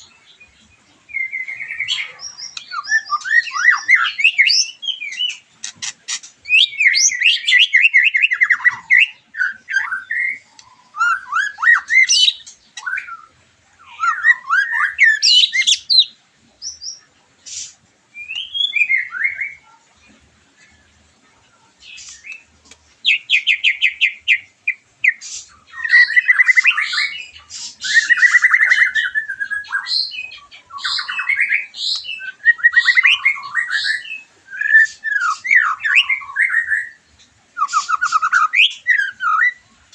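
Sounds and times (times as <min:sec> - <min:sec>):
bird singing whistles and trills: 0:00.0 - 0:19.8, 0:21.8 - 0:39.8.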